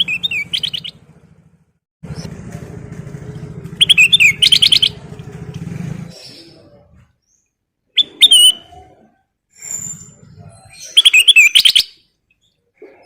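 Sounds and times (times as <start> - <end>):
bird chirping rapidly: 0.0 - 1.2, 3.3 - 5.2, 6.1 - 8.8, 9.6 - 12.6
low engine-like hum: 0.0 - 7.2
bird whistled notes: 3.8 - 5.0, 8.0 - 8.8, 9.6 - 12.0.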